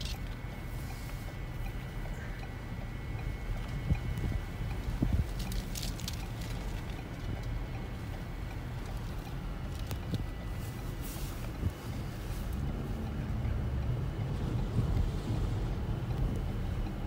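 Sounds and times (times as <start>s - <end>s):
wind buffeting microphone: 3.6s - 5.6s, 11.4s - 17.0s.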